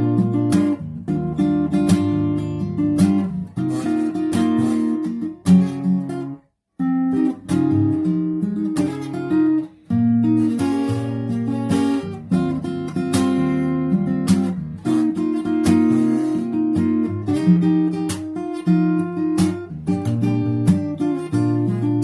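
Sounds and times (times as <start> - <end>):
acoustic guitar playing: 0.0 - 22.0.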